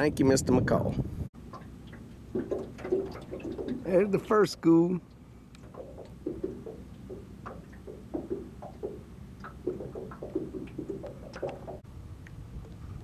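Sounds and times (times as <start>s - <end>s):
wind rumble on microphone: 0.0s - 1.3s, 5.6s - 13.0s
small water splashes: 1.4s - 11.8s.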